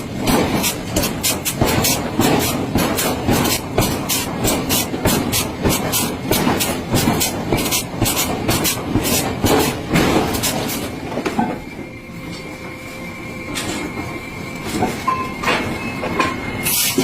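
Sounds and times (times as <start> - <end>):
thin steady ringing tone: 11.7 - 17.0.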